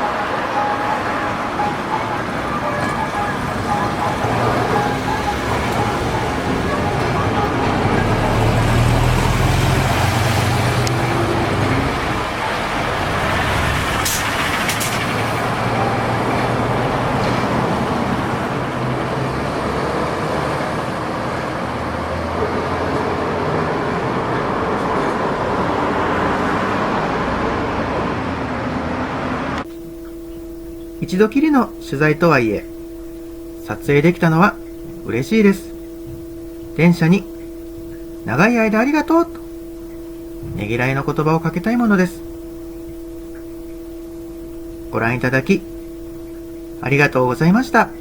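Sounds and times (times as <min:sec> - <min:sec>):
road traffic: 0:00.0 - 0:30.8.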